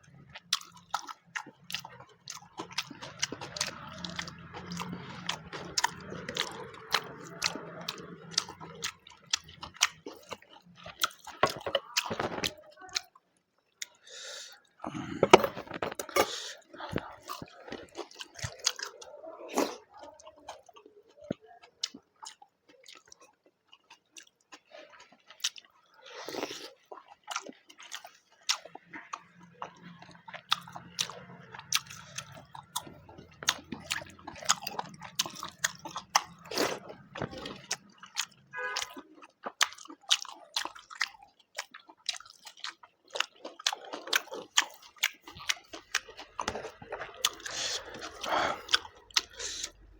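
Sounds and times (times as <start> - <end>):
person chewing food: 0.0 - 49.9
wet mouth clicks: 44.6 - 49.9.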